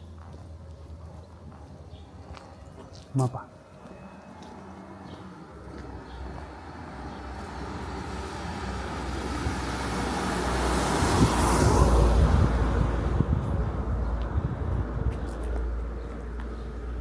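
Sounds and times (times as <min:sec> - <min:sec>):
vehicle approaching engine and tyres: 0:03.6 - 0:17.0.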